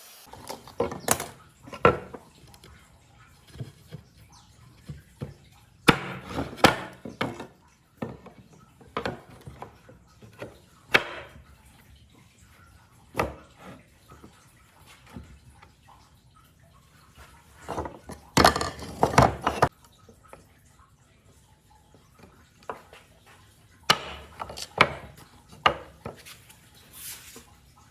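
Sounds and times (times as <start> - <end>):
scraping or rubbing strokes on wood: 26.1 - 27.5.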